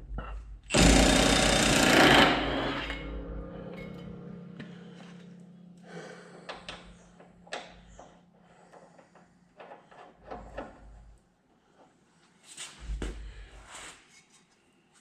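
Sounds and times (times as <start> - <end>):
steady low hum: 0.0 - 11.8
metal clinks and knocks: 1.9 - 11.2.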